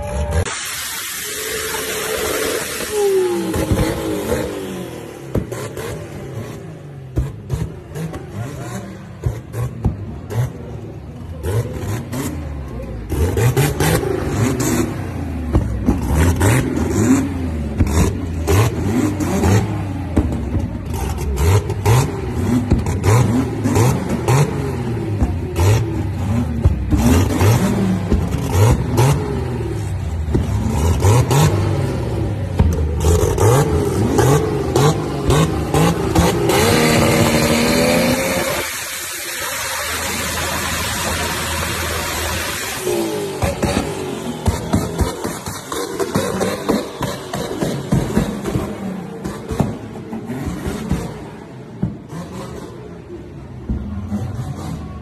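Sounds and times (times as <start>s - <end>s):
drag car engine revving: 0.0s - 55.0s
exhaust pops and cracks: 40.3s - 52.1s.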